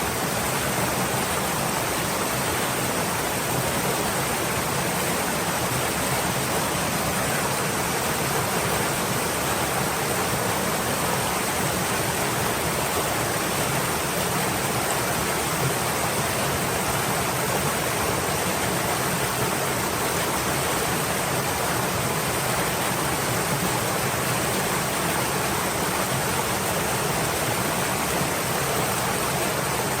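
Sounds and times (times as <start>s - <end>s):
stream flowing: 0.0s - 30.0s.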